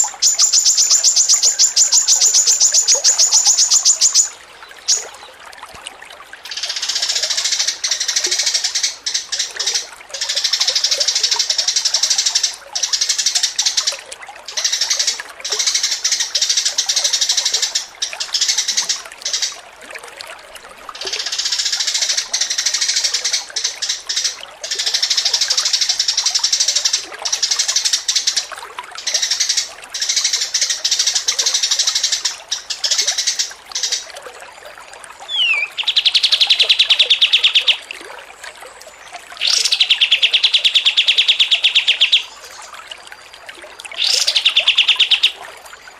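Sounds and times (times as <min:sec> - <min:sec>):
songbird chattering and trilling: 0:00.0 - 0:05.1, 0:35.3 - 0:37.8, 0:39.4 - 0:42.4, 0:44.0 - 0:45.4.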